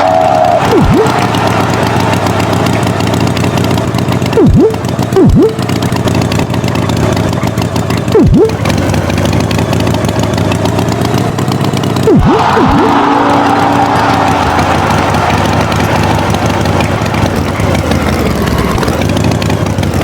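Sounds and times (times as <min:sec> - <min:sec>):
cartoon swoops falling and rising: 0:00.0 - 0:01.3, 0:04.4 - 0:05.6, 0:08.2 - 0:08.6, 0:12.0 - 0:14.7
tractor engine running: 0:00.0 - 0:20.0.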